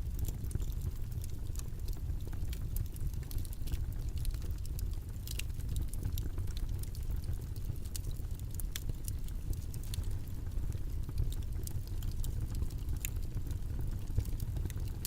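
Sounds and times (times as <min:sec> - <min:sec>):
faint clicks and ticks: 0:00.0 - 0:15.0.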